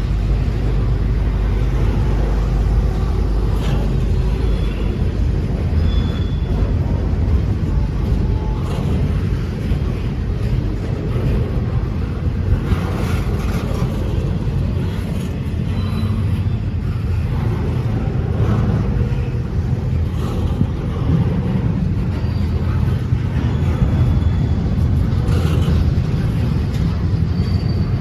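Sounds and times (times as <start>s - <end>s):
train rumbling past: 0.0s - 28.0s.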